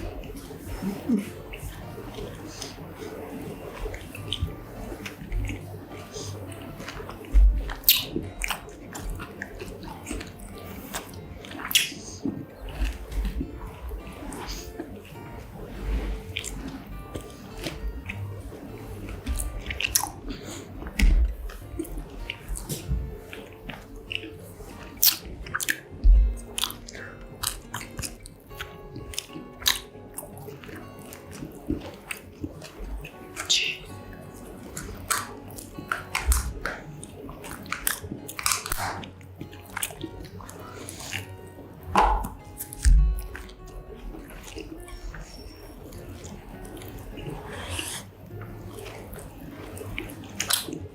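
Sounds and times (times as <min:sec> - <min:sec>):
biting and chewing corn dog: 0:16.3 - 0:36.8, 0:37.4 - 0:50.9.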